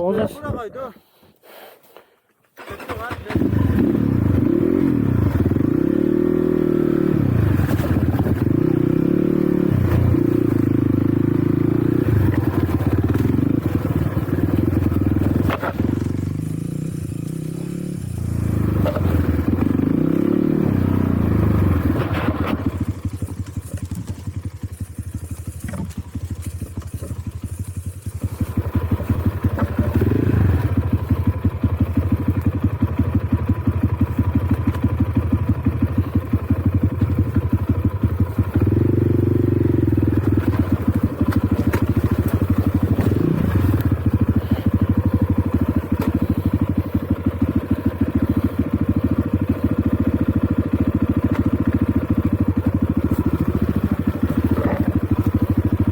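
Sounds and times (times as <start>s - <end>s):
motorcycle engine revving: 2.6s - 55.9s.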